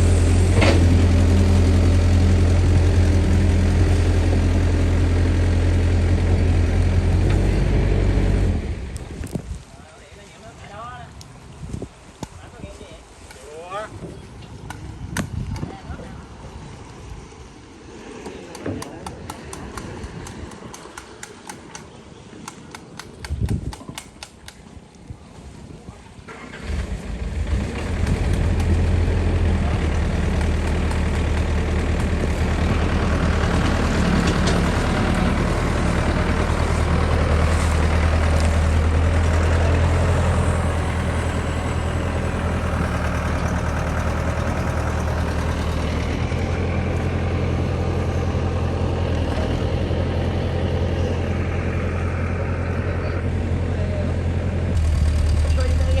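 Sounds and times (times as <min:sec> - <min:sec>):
diesel engine starting and running: 0:00.0 - 0:09.4, 0:26.3 - 0:56.0.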